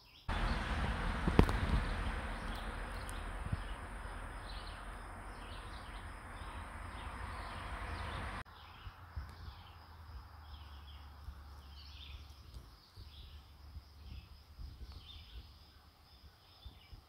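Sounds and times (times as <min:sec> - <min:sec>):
songbirds chirping: 0:00.0 - 0:17.0
steady rushing noise: 0:00.3 - 0:08.4.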